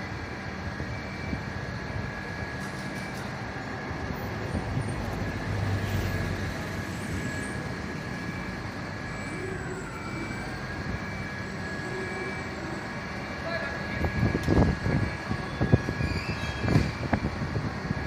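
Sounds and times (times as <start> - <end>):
large vehicle engine running: 0.0 - 18.0
thin high whine: 0.0 - 18.0.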